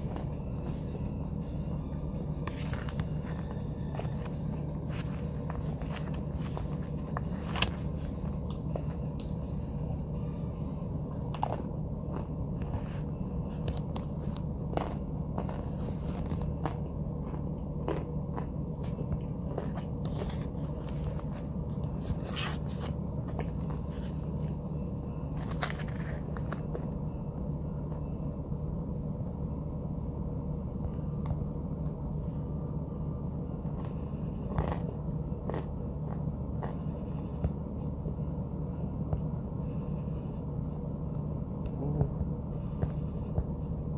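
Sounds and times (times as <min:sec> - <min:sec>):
chewing and crunching: 0:00.0 - 0:27.2, 0:33.5 - 0:38.3
steady low hum: 0:00.0 - 0:43.9.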